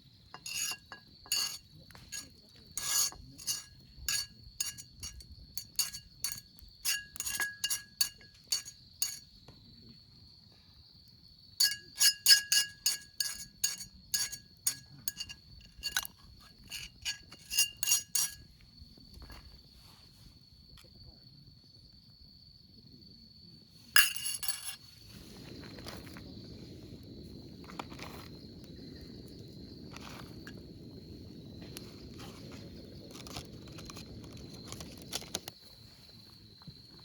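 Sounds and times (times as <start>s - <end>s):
utensil clinking against cup: 0.4s - 9.3s, 11.6s - 18.4s, 24.0s - 24.8s.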